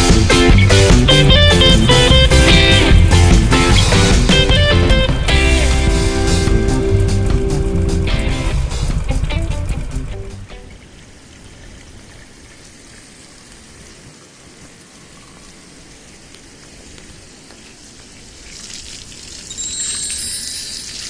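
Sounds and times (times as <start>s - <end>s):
running water: 0.0s - 21.0s
high chirping tones: 19.4s - 21.0s.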